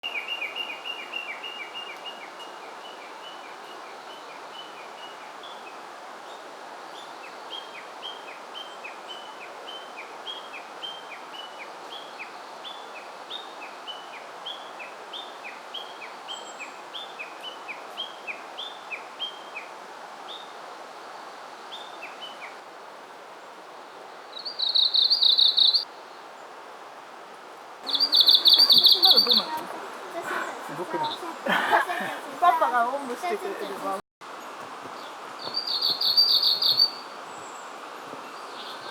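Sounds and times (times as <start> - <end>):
warbler singing: 24.4 - 25.9, 27.8 - 34.0, 34.9 - 38.9.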